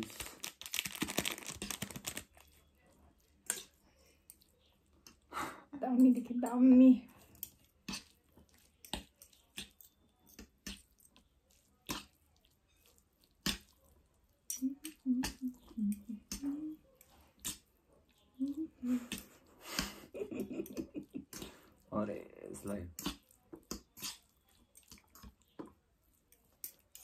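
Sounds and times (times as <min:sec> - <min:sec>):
chewing noodles mouth smacks: 0:07.2 - 0:16.4, 0:17.0 - 0:19.9, 0:22.9 - 0:27.0.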